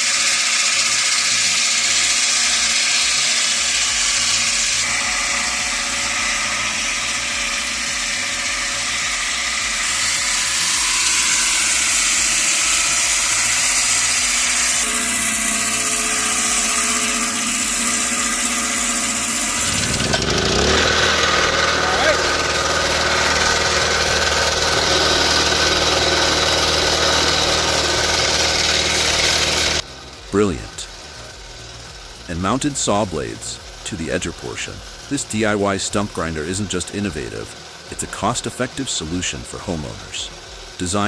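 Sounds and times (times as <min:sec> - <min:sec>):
circular saw cutting log: 0:00.0 - 0:41.0
engine running: 0:00.0 - 0:41.0.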